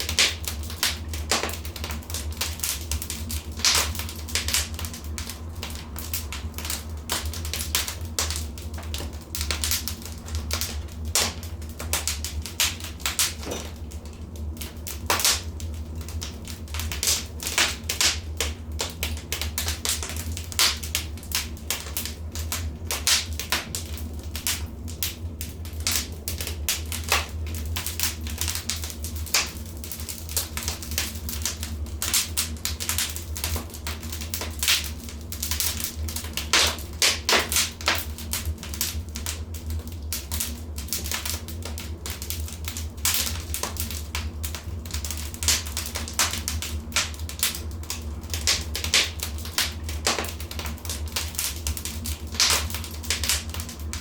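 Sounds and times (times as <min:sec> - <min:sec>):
low steady rumble: 0:00.0 - 0:54.0
wood fire crackling: 0:00.0 - 0:54.0
sharp pops and snaps: 0:26.8 - 0:39.4.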